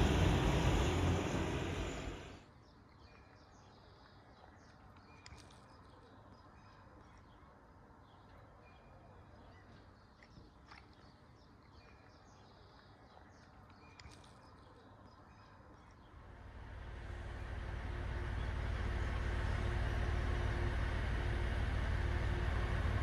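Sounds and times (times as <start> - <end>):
steady hum: 0.0 - 2.4, 16.2 - 23.0
train wheels rumbling on rails: 0.0 - 2.4, 16.6 - 23.0.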